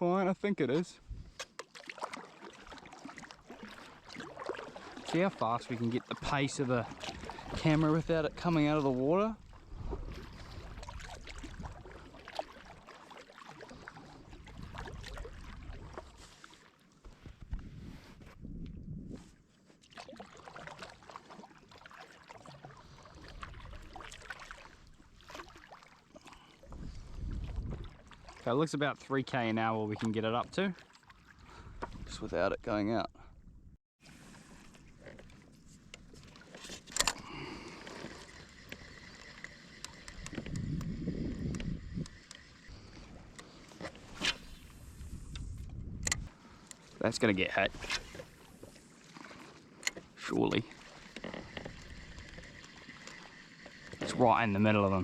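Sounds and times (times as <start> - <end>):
water splashing against kayak hull: 0.6 - 32.5, 34.0 - 55.0.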